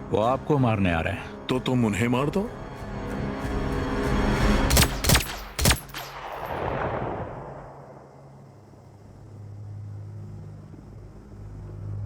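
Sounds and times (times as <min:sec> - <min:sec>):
gunshots: 0:04.7 - 0:07.7.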